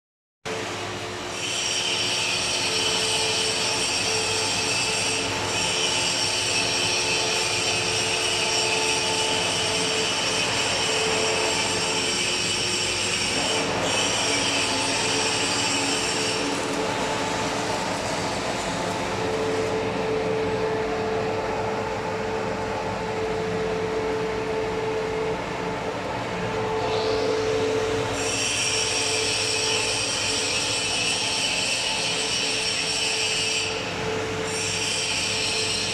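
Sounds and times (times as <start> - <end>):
welding arc crackling and sizzling: 1.3 - 19.8
high whine: 6.4 - 34.5.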